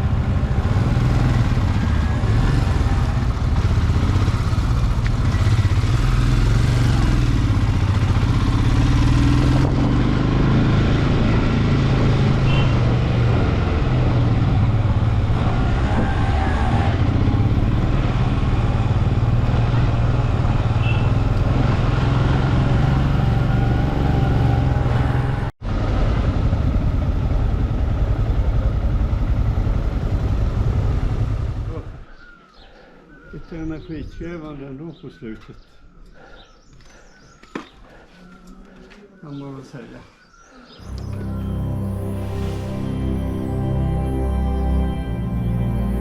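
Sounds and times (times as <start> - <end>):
motorcycle engine running: 0.0 - 16.0, 16.6 - 32.0.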